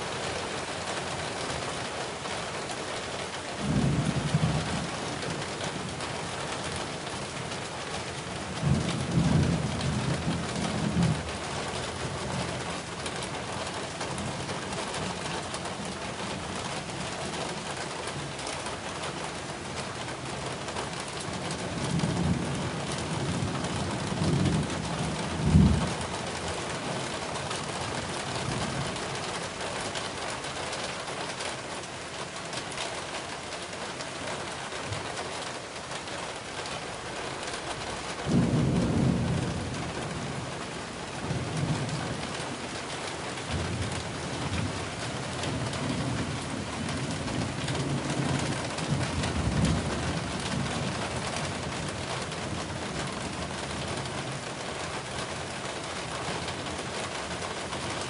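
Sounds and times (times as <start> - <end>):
heavy rain hissing: 33.0 - 58.0.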